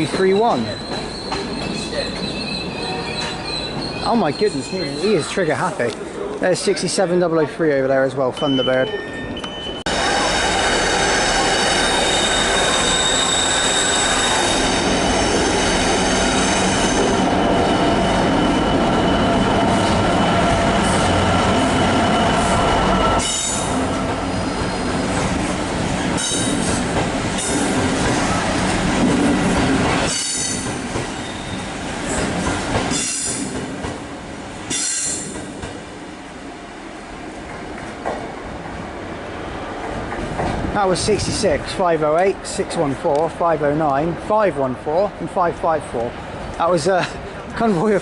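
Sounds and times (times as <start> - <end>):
diesel locomotive engines: 0.0 - 48.0
train wheels squealing: 0.1 - 5.4, 8.8 - 25.1, 30.0 - 31.7, 32.9 - 33.5, 34.7 - 35.4.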